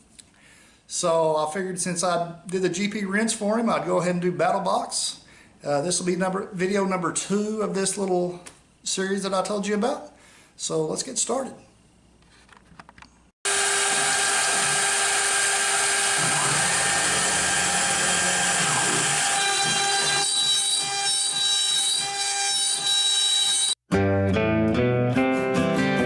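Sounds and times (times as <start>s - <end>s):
router spindle high whine: 13.5s - 22.2s.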